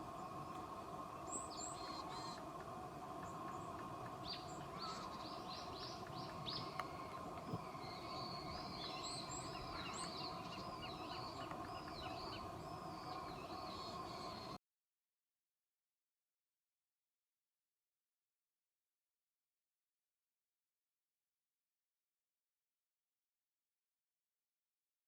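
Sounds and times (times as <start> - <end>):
songbirds chirping and twittering: 0.0 - 14.6
steady background hum: 0.0 - 14.6.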